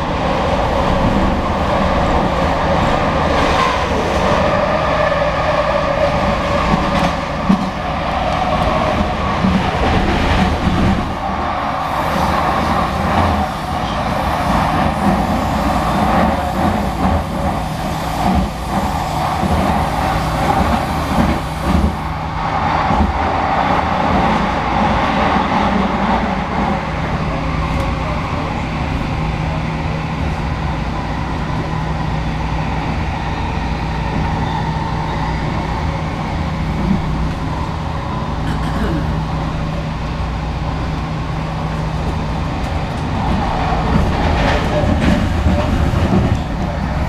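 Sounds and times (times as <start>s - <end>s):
train ride rumble and rush: 0.0s - 47.0s.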